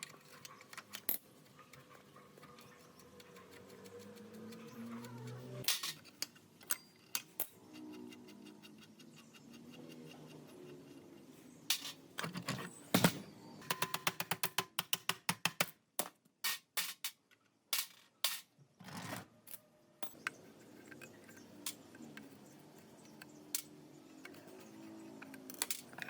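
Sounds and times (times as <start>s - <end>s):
hard objects clicking and knocking: 11.7s - 18.5s.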